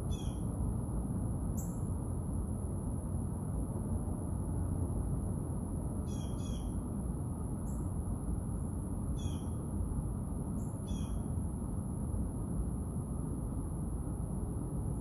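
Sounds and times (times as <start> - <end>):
steady low rumble: 6.7 - 15.0.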